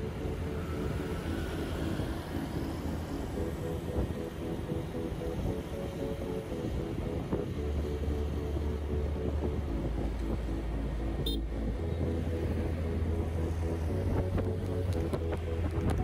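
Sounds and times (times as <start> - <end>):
street traffic: 0.0 - 16.0
music with bass: 3.2 - 16.0.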